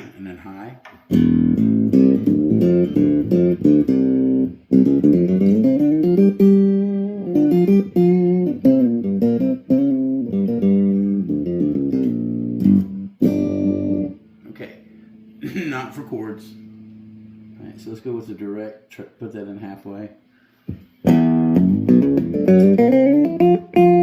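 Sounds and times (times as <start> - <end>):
octave-shifted acoustic guitar notes: 1.1 - 18.2, 21.1 - 24.0.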